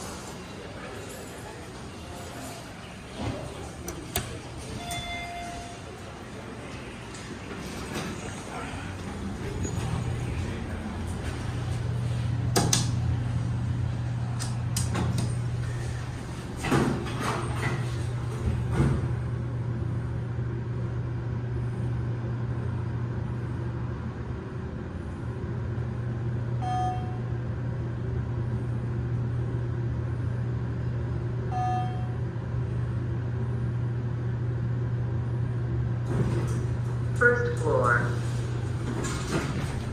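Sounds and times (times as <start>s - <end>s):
elevator low hum: 0.0s - 39.9s
elevator doors knocking and clicking: 2.0s - 19.4s, 36.0s - 39.9s.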